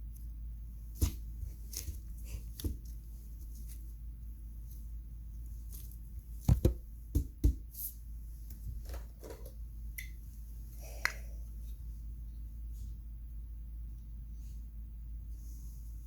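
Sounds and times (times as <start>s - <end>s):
steady low hum: 0.0s - 16.0s
toys knocking against a surface: 6.5s - 7.6s.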